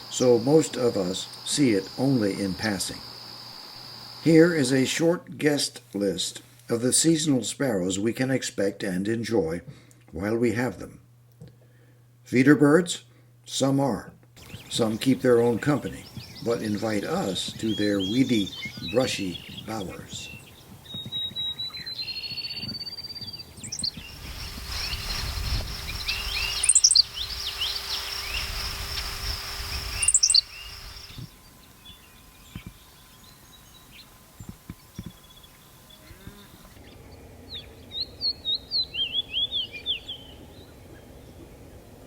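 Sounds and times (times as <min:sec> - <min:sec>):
sparrows chirping: 0:00.0 - 0:04.8, 0:14.4 - 0:41.8.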